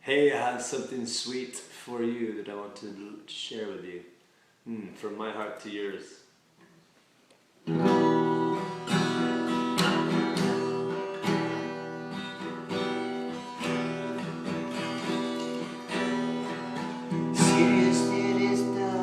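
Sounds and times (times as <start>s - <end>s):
acoustic guitar strummed: 7.7s - 19.0s.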